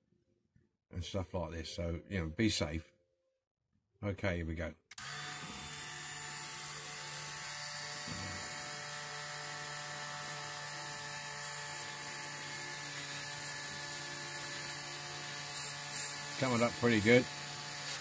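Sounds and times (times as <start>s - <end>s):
rotary tool whining: 4.9s - 18.0s.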